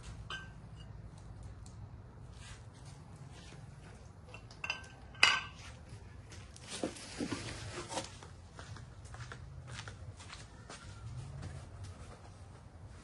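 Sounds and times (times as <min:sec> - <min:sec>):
metal clinking: 0:00.2 - 0:01.0, 0:04.3 - 0:05.6.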